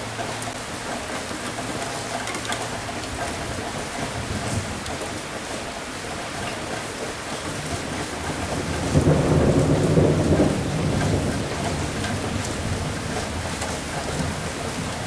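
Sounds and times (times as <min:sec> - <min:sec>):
steady rain: 0:00.0 - 0:15.0
thunder rumbling: 0:07.6 - 0:15.0.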